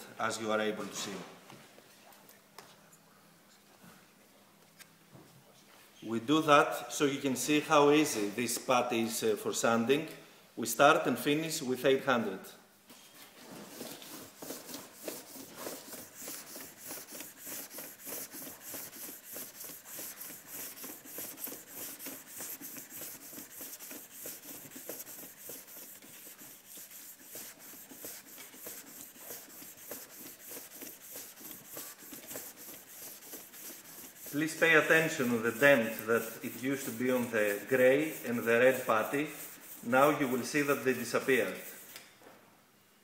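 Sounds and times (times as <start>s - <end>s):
sandpaper rasping on putty: 13.7s - 41.9s.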